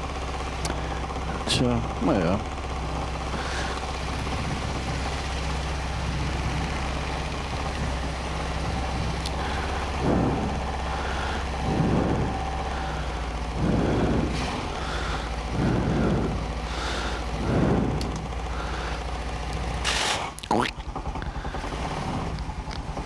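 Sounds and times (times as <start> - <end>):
quad engine running: 0.0 - 23.0.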